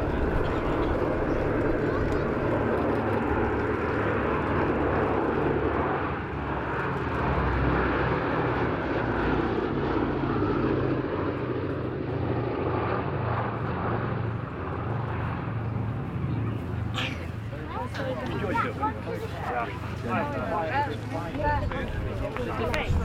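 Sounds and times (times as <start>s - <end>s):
propeller plane engines droning: 0.0s - 23.0s.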